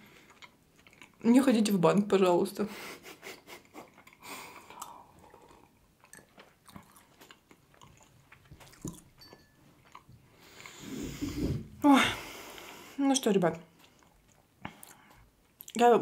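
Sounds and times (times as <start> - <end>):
quiet chewing with clicks: 0.0 - 1.4, 3.4 - 9.2, 9.8 - 10.8, 13.6 - 15.8
person sipping tea: 4.0 - 9.2, 9.9 - 11.9.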